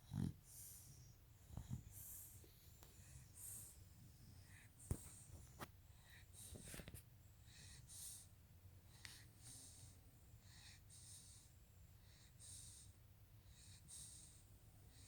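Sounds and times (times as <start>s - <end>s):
dog snoring faintly: 0.0s - 6.9s.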